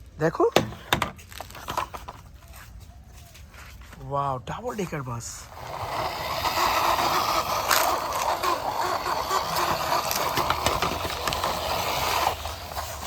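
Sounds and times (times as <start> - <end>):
toy bus whirring: 5.4 - 13.0.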